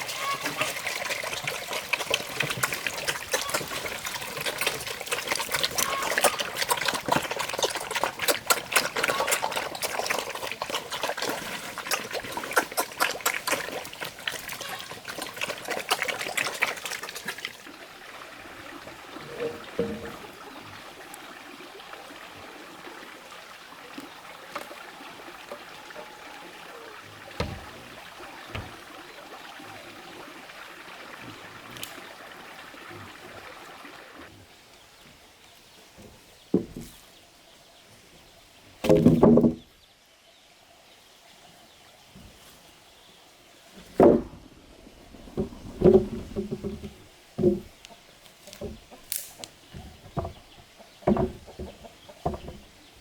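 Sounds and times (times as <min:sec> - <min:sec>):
water trickling and splashing: 0:00.0 - 0:53.0
soft knocks: 0:27.4 - 0:28.9.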